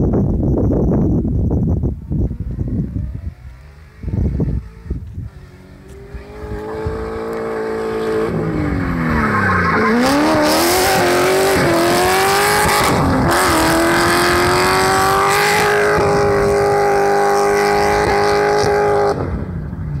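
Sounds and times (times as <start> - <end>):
car engine revving hard: 2.9 - 19.5
tyre squeal: 6.0 - 11.8.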